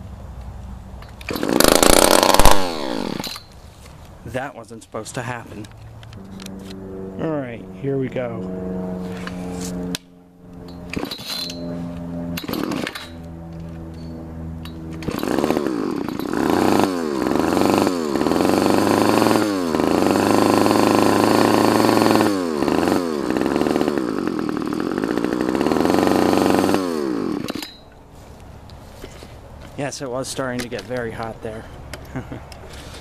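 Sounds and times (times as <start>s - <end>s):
two-stroke engine revving: 1.2s - 3.5s, 6.2s - 27.8s.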